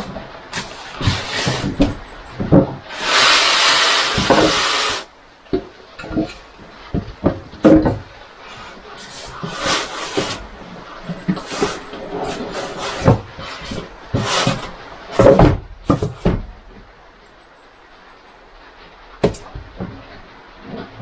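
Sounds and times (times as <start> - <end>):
knocks and clatter: 0.0 - 2.9, 5.5 - 8.2, 9.0 - 16.9, 19.2 - 21.0
loud hiss: 2.9 - 5.1, 8.3 - 16.2.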